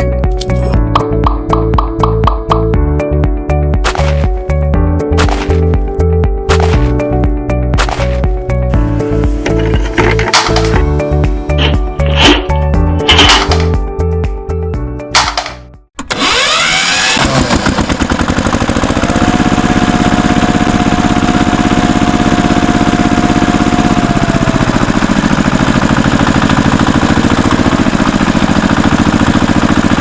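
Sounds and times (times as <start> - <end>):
small engine starting and chugging: 6.5 - 7.0, 9.5 - 13.8, 15.2 - 30.0.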